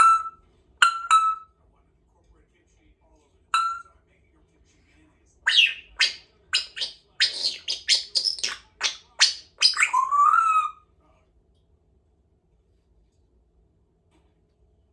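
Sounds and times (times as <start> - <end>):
parrot whistle rising: 0.0 - 1.4, 3.6 - 3.9, 5.5 - 10.8
parrot chirping: 0.0 - 1.5, 3.5 - 3.9, 5.4 - 10.8.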